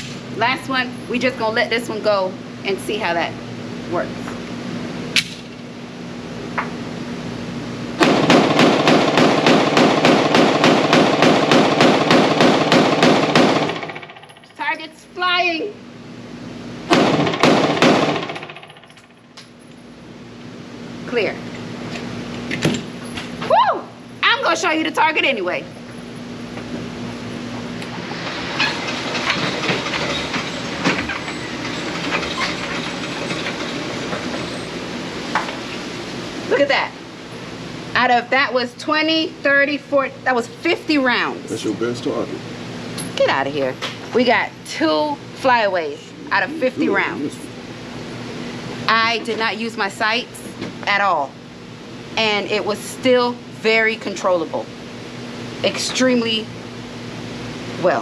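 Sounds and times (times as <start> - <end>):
rapid pistol shots echoing: 8.0 - 14.0, 16.9 - 18.6
motorized target carrier running: 8.0 - 14.8, 16.9 - 19.8, 27.6 - 36.6.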